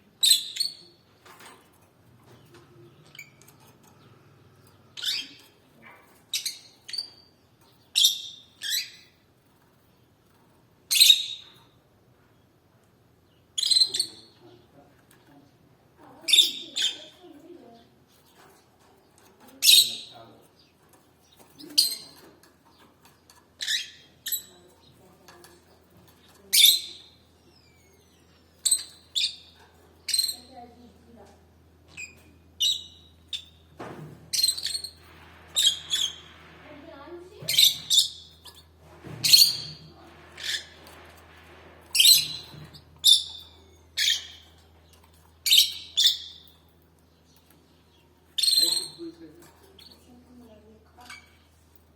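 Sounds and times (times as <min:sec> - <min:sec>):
canary chirping: 0:00.2 - 0:09.6, 0:10.2 - 0:11.8, 0:13.2 - 0:14.5, 0:16.0 - 0:31.2, 0:31.8 - 0:51.8
canary calling: 0:04.6 - 0:05.6, 0:16.0 - 0:17.8, 0:34.3 - 0:41.3, 0:41.9 - 0:50.2.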